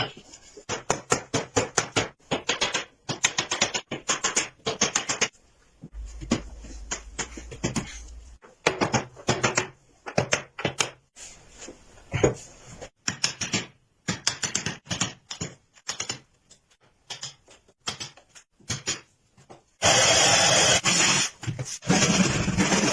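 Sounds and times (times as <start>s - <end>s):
low hum: 6.0s - 8.4s.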